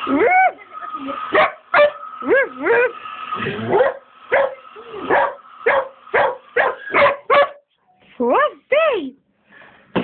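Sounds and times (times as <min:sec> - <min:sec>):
hairdryer whine: 0:00.0 - 0:07.0
dog barking: 0:01.3 - 0:02.0, 0:03.7 - 0:07.7.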